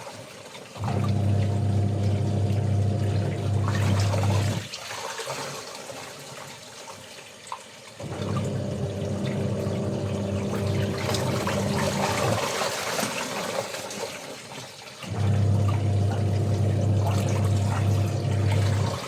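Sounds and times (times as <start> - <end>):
water running and splashing: 0.0 - 19.0
electric motor hum: 0.8 - 4.6, 8.1 - 12.4, 15.1 - 19.0.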